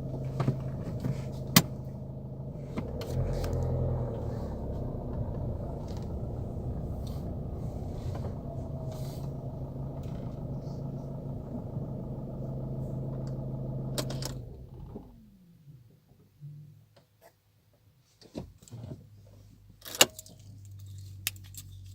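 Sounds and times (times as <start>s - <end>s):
diesel car engine idling: 0.0s - 15.4s
engine running down: 0.0s - 15.6s.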